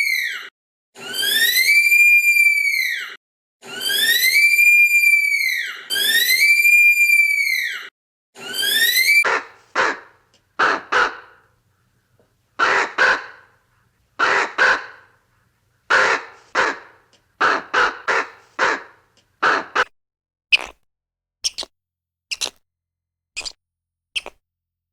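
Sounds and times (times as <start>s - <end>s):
harsh rasping bird calls: 8.4s - 19.9s, 24.2s - 24.4s.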